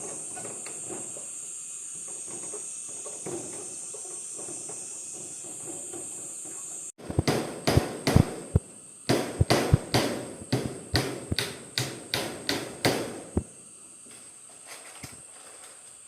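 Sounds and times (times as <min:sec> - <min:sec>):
hand tool knocking on bamboo: 0:07.1 - 0:08.3.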